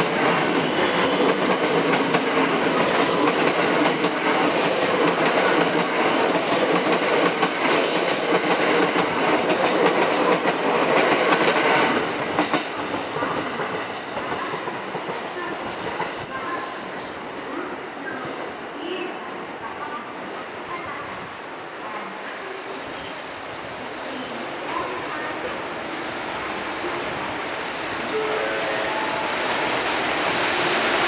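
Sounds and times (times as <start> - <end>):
train wheels rushing on rails: 0.0 - 17.0, 25.8 - 31.0.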